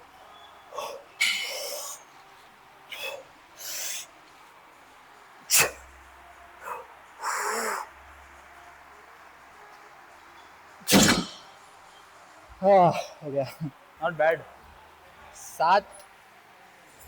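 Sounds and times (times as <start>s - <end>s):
short sharp sound: 10.9s - 11.5s.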